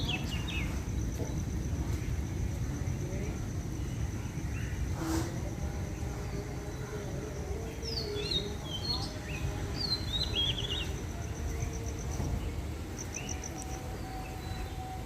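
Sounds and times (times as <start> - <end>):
birds chirping and whistling: 7.8 - 15.0.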